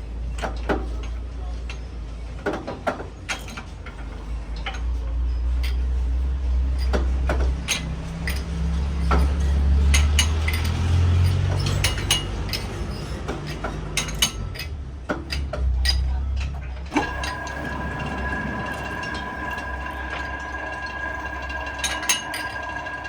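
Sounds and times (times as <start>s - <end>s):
low machine hum: 16.9s - 23.0s.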